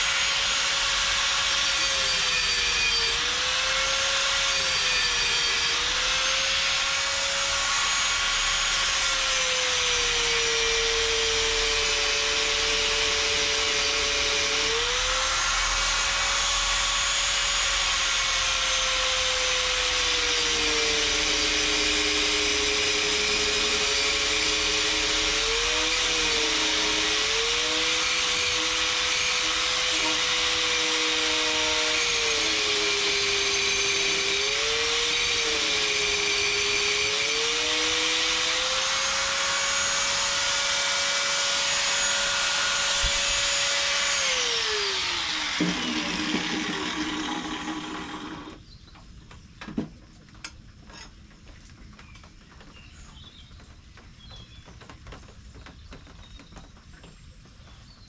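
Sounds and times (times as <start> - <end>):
small motor running: 19.2 - 48.6.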